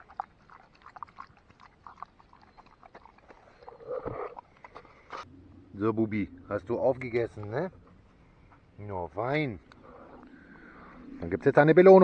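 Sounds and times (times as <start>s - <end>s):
dog chewing and licking: 0.0s - 4.8s.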